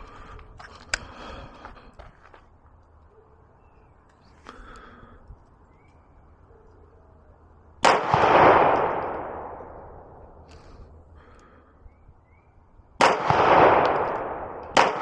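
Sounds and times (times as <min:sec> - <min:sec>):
gunshot with rolling echo: 0:07.8 - 0:10.4, 0:13.0 - 0:15.0.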